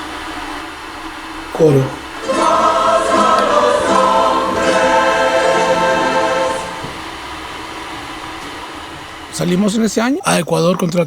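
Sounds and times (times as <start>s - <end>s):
choir singing a held chord: 1.6s - 7.4s.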